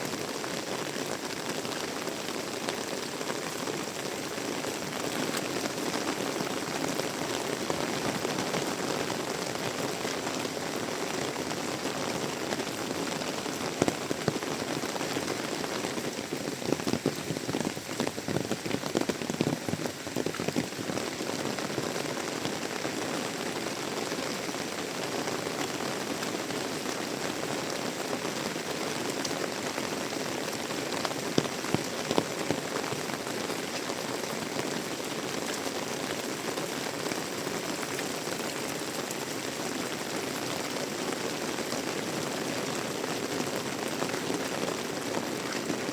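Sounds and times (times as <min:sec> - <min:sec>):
heavy rain pattering: 0:00.0 - 0:45.9.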